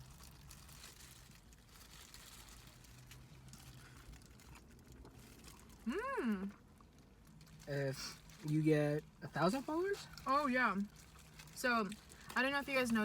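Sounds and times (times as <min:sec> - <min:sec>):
crinkling and rustling of food: 0:00.0 - 0:13.0
short voiced vocal sound: 0:05.8 - 0:06.5.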